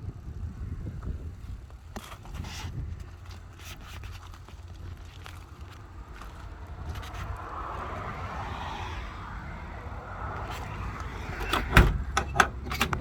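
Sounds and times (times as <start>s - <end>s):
pickup truck engine rumbling: 4.7s - 13.0s.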